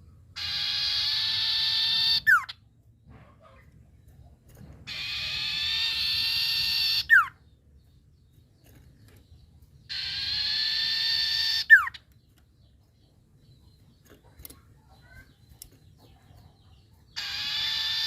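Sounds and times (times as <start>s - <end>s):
bird calling with buzzy notes: 0.4s - 2.6s, 4.9s - 7.4s, 9.8s - 12.1s, 17.1s - 18.0s.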